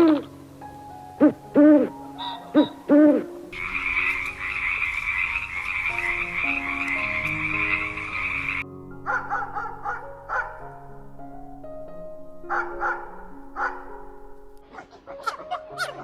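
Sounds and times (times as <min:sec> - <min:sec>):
animal hoots: 0:00.0 - 0:00.3, 0:01.2 - 0:10.4
soft background music: 0:00.0 - 0:16.0.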